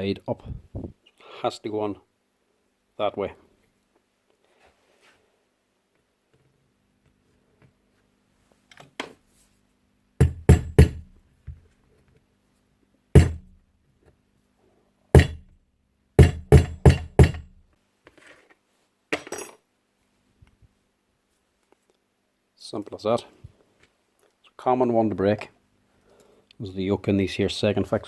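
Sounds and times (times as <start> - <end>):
hammer tapping metal: 10.2 - 11.2, 13.2 - 13.6, 15.2 - 15.5, 16.2 - 17.6.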